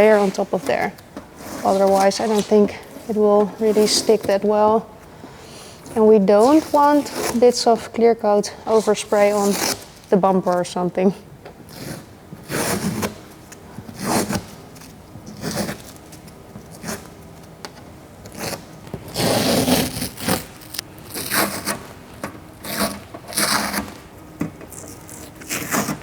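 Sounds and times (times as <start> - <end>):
masking tape ripping off roll: 18.3 - 26.0.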